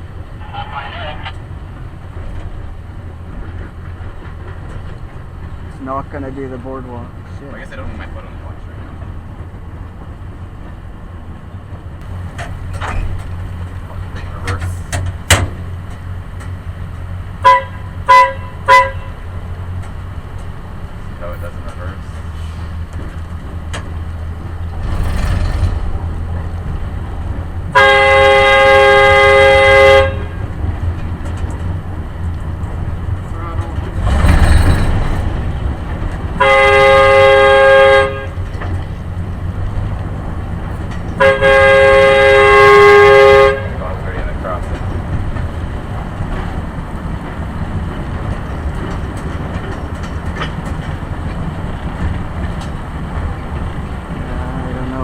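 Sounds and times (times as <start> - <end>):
vehicle engine running: 0.0 - 55.0
wheel and track noise: 0.0 - 55.0
air horn chord blast: 17.4 - 19.2, 27.7 - 30.4, 36.4 - 38.4, 41.2 - 43.8.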